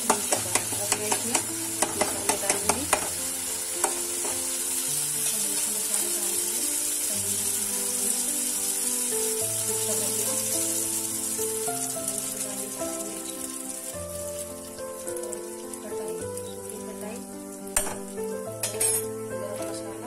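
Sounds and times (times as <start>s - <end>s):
spatula tap: 0.0s - 3.2s, 3.8s - 4.4s
gentle instrumental melody: 0.0s - 20.0s
masala sizzling in ghee: 0.0s - 20.0s.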